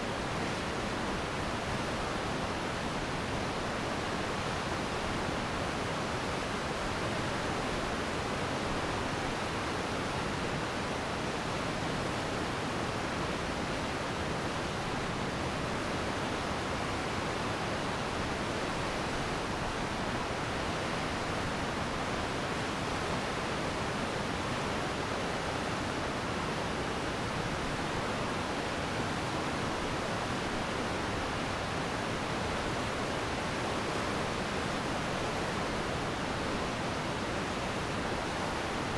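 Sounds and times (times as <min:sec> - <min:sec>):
stream rushing: 0:16.8 - 0:38.9.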